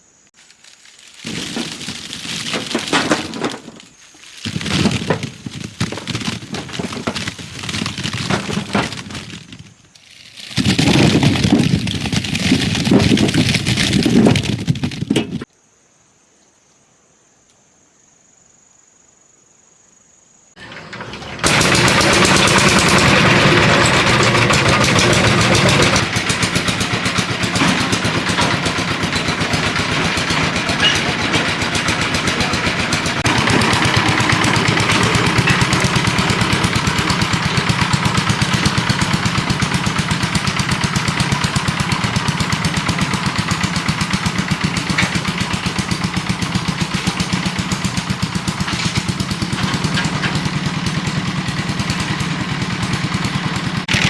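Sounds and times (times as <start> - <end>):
small engine chugging: 20.6 - 54.0.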